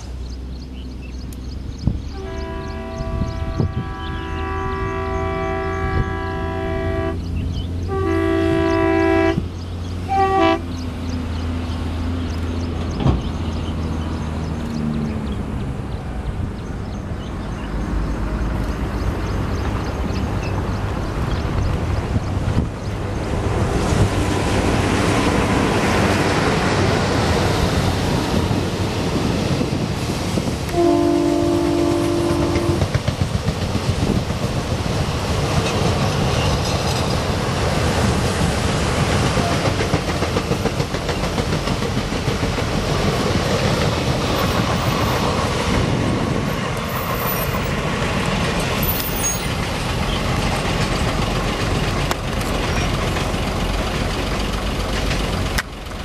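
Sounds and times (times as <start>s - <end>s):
coaches rattling over rail joints: 0.0s - 56.0s
train engines and wheels rumbling: 0.0s - 56.0s
train horn: 2.1s - 9.5s, 10.1s - 10.7s, 30.7s - 33.0s, 39.4s - 39.9s.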